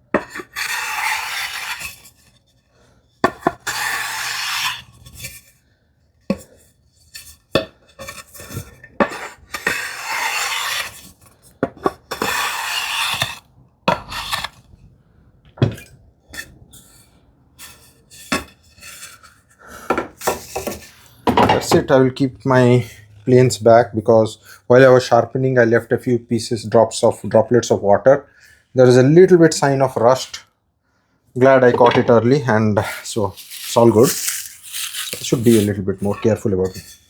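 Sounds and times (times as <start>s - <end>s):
hand plane shaving strokes: 0.2s - 2.2s, 3.2s - 5.4s, 9.0s - 14.7s
tool and wood knocks: 19.9s - 21.8s.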